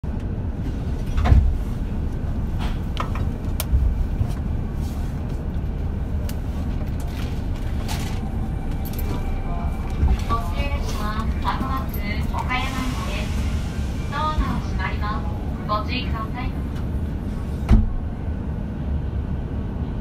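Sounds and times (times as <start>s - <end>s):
train standing low rumble: 0.0s - 20.0s.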